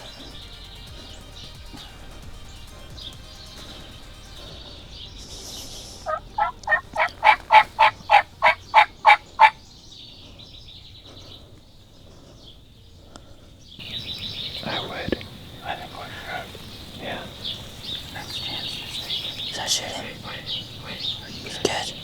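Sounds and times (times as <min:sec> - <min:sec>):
turkey yelping: 0:00.0 - 0:09.8.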